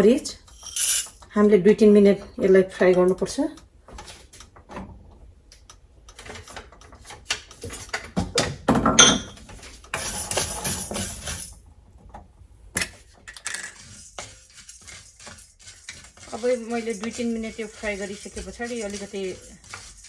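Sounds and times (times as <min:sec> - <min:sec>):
seeds rattling against metal: 0:00.5 - 0:01.2
clatter in a pan: 0:12.8 - 0:20.0
spoon scraping a pan: 0:13.5 - 0:20.0.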